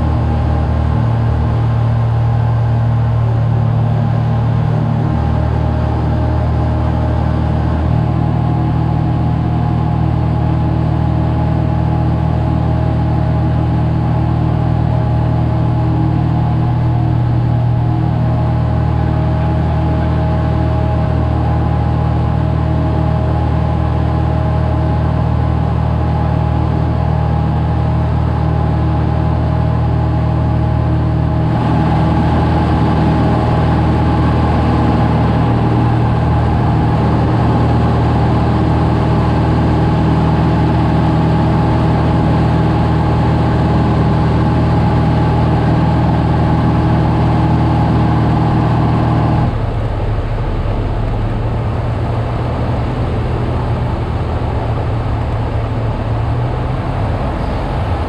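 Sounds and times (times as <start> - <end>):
airplane engine and propeller droning: 0.0 - 58.0.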